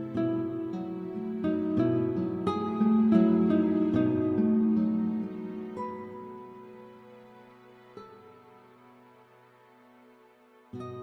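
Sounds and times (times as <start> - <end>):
plucked guitar melody: 0.0 - 8.4.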